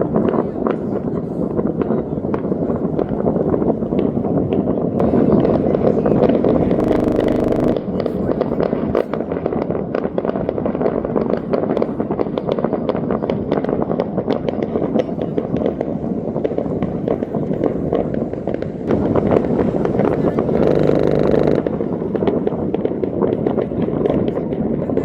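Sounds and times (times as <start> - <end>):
fireworks cracking and popping: 0.0 - 25.0
low steady rumble: 6.7 - 7.9.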